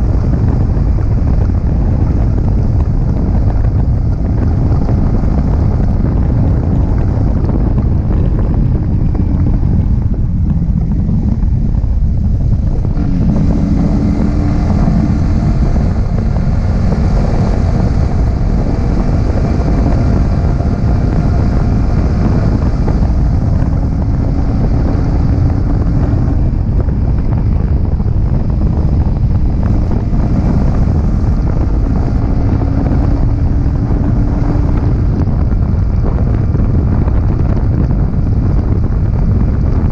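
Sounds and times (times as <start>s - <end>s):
motorcycle engine revving: 0.0s - 39.9s
wind buffeting microphone: 0.0s - 39.9s.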